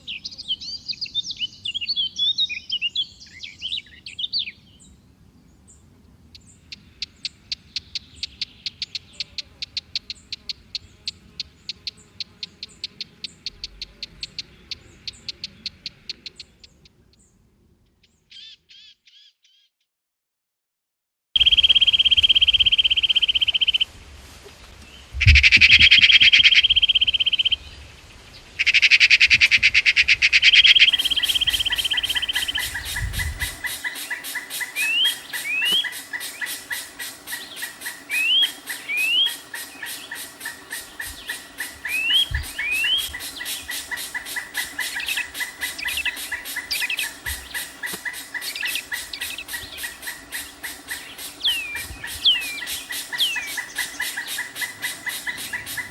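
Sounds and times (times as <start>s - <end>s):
buzzy bird calls: 6.4s - 17.3s, 21.4s - 23.9s, 24.9s - 55.9s
short rising bird chirps: 30.4s - 55.9s
fast steady ticking: 30.8s - 55.9s.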